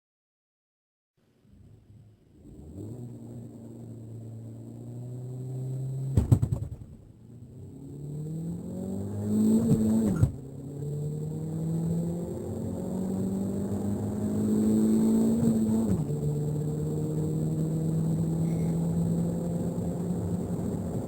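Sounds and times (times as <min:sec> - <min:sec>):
car engine accelerating hard: 0:01.9 - 0:21.0
loud knocks: 0:06.2 - 0:06.9.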